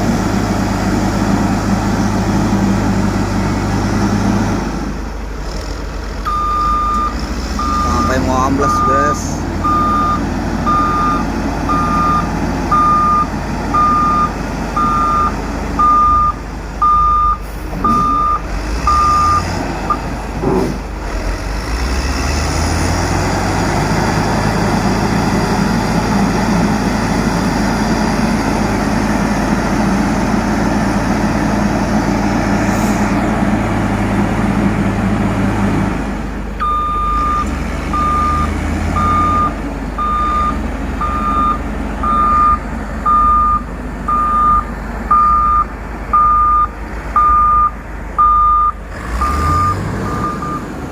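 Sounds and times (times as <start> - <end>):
diesel engine revving: 0.0 - 50.9
back-up alarm beeping: 6.3 - 19.4, 36.6 - 50.6.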